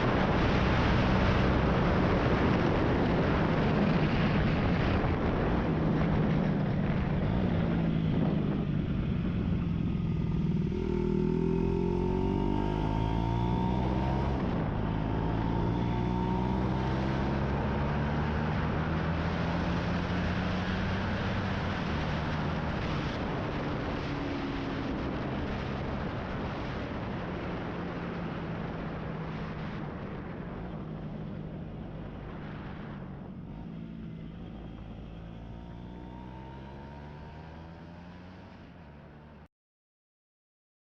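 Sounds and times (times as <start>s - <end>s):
motorcycle engine running: 29.8s - 39.3s.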